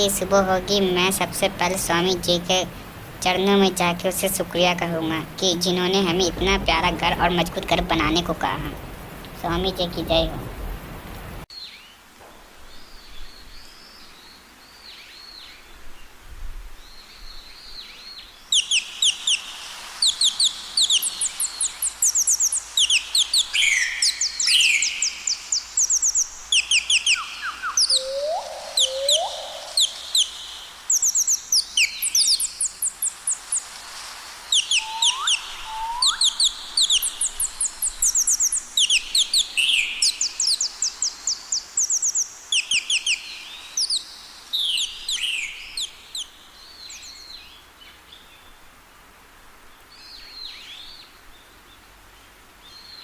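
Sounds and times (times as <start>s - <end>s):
birds chirping: 0.0s - 10.4s, 16.9s - 33.8s, 34.4s - 48.6s
upward-sweeping bird calls: 17.0s - 33.8s, 34.4s - 47.4s
fast high bird trills: 18.5s - 33.7s, 34.5s - 43.2s.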